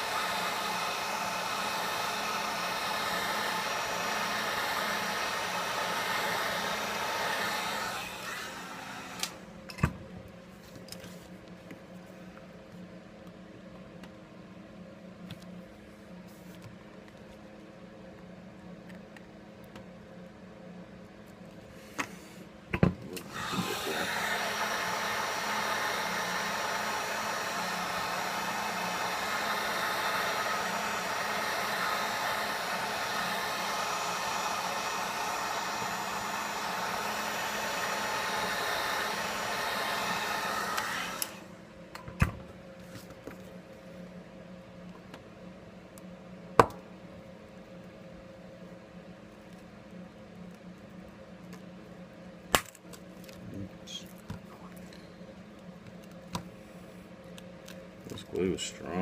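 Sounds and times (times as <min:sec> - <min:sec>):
hot-air blower running: 0:00.0 - 0:13.0, 0:21.6 - 0:48.9, 0:52.5 - 0:59.0.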